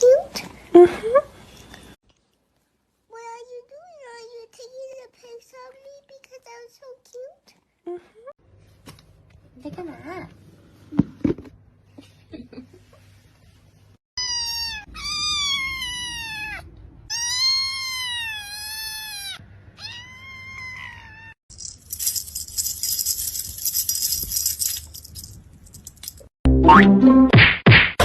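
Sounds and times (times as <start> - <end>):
cat meowing: 14.2 - 21.4.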